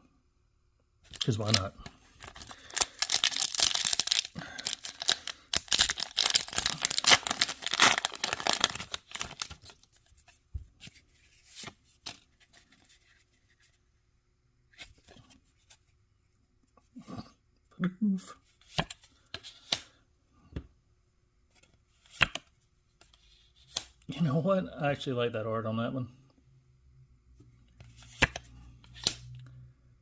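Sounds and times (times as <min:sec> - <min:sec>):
cards clicking and rustling: 0:01.1 - 0:09.7, 0:27.8 - 0:29.3
foil pack tearing and crinkling: 0:01.2 - 0:09.7.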